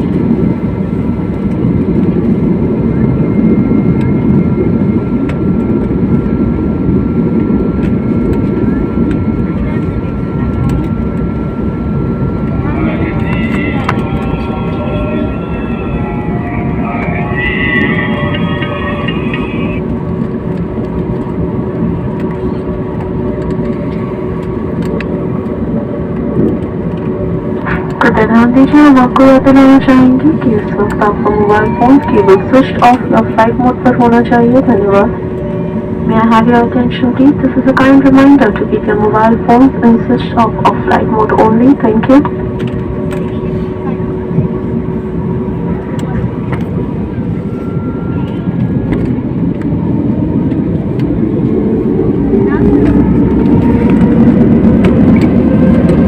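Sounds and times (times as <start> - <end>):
jet engine rumble: 0.0 - 56.0
thin high whine: 12.0 - 20.6, 46.1 - 49.2.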